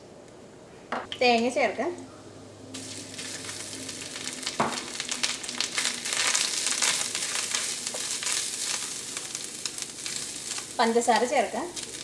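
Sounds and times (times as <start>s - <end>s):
coconut sizzling in oil: 2.7s - 12.0s.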